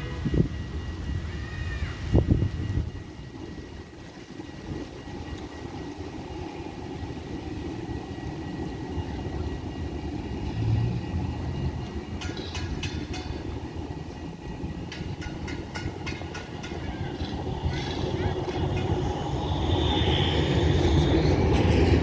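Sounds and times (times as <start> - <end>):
tram rumbling along track: 0.0 - 22.0
wheels clacking over rail joints: 10.1 - 20.1.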